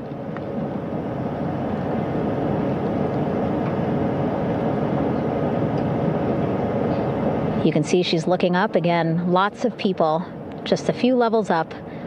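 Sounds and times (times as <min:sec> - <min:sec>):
helicopter running: 0:00.0 - 0:12.0.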